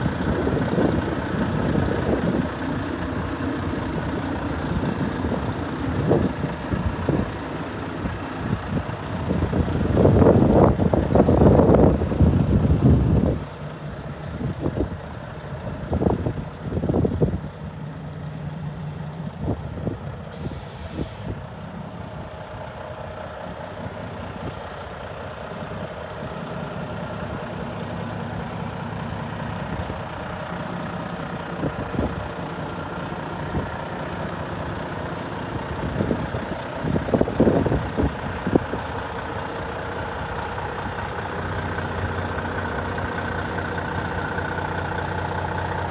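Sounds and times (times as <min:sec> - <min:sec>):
diesel truck engine idling: 0:00.0 - 0:45.9
air hiss: 0:20.3 - 0:21.4.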